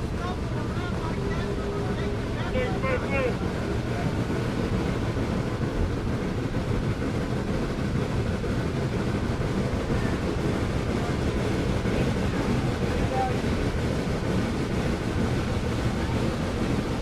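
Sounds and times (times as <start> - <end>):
moving train rumble: 0.0 - 17.0.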